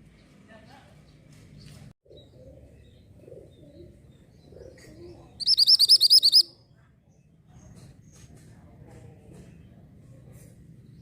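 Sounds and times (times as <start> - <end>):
songbird trill: 1.0 - 8.3.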